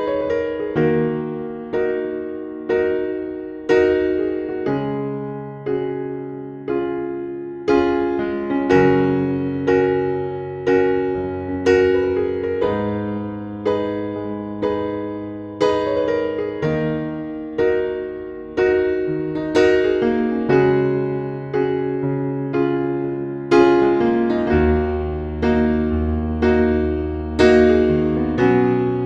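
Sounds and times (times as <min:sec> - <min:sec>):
slow electric piano chords: 0:00.0 - 0:29.0.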